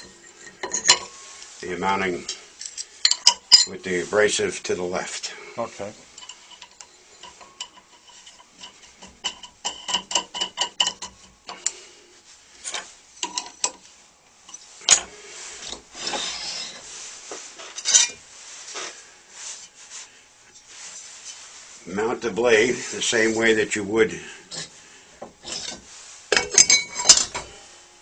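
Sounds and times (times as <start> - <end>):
metal parts knocking and rubbing: 0.0 - 1.2, 2.2 - 3.8, 6.0 - 11.8, 12.6 - 13.8, 14.5 - 16.9, 17.5 - 18.2, 25.3 - 27.5.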